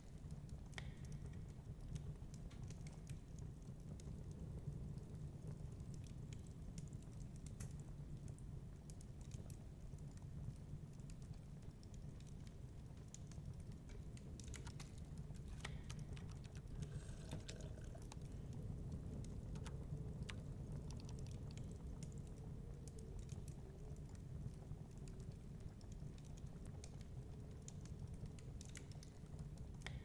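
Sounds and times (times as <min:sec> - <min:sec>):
wood fire crackling and popping: 0:00.0 - 0:30.0
fire rumbling: 0:12.9 - 0:26.1.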